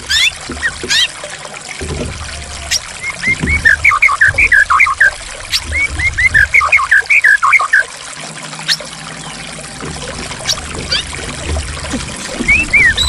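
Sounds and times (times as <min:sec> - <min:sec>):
water trickling: 0:00.0 - 0:13.0
songbird whistling: 0:03.0 - 0:05.1, 0:05.7 - 0:07.9, 0:12.4 - 0:13.0.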